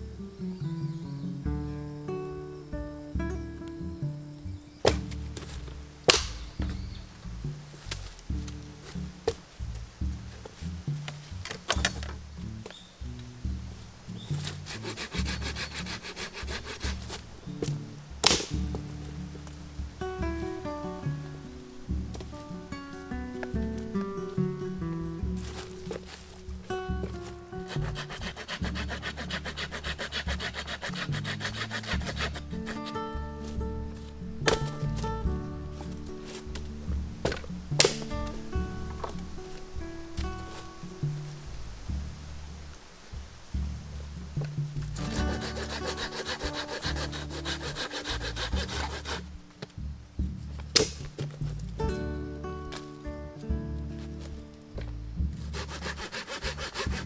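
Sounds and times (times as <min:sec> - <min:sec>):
soft acoustic guitar music: 0:00.0 - 0:57.0
hand saw cutting wood: 0:04.8 - 0:06.9, 0:14.2 - 0:18.9, 0:25.4 - 0:26.4, 0:27.0 - 0:35.1, 0:35.8 - 0:36.6, 0:37.3 - 0:38.4, 0:45.0 - 0:49.7, 0:55.4 - 0:57.0
sharp crack: 0:04.8 - 0:08.3, 0:14.3 - 0:19.1, 0:34.4 - 0:35.2, 0:37.3 - 0:40.7, 0:50.6 - 0:51.6.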